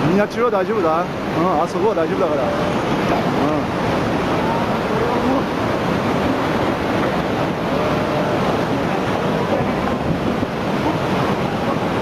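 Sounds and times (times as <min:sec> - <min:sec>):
churning water roaring: 0:00.0 - 0:12.0
wind buffeting microphone: 0:02.4 - 0:12.0.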